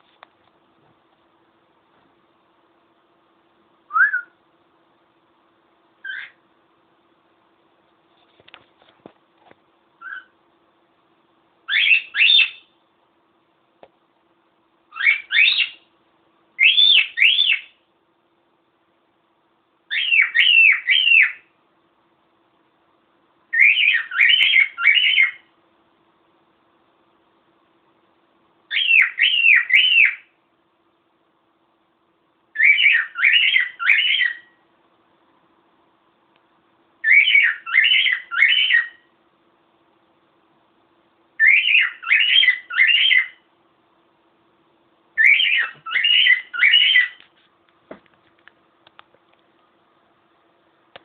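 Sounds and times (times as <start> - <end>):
cockatiel whistling: 3.9 - 4.4, 6.0 - 6.4, 10.0 - 10.3, 11.7 - 12.7, 14.9 - 15.8, 16.6 - 17.8, 19.9 - 21.5, 23.5 - 25.5, 28.7 - 30.3, 32.6 - 34.6, 37.0 - 39.0, 41.4 - 43.4, 45.2 - 47.2
soft bird chirp: 6.0 - 6.4, 10.0 - 10.4, 11.7 - 12.8, 14.9 - 15.9, 16.6 - 17.8, 19.9 - 21.5, 23.5 - 25.5, 28.7 - 30.4, 32.5 - 34.6, 37.0 - 39.1, 41.4 - 43.5, 45.2 - 47.2.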